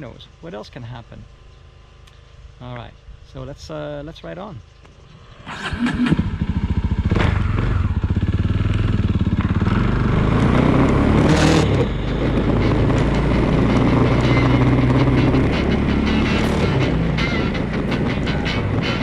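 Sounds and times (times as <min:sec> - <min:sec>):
motorcycle engine accelerating: 0:05.1 - 0:19.0.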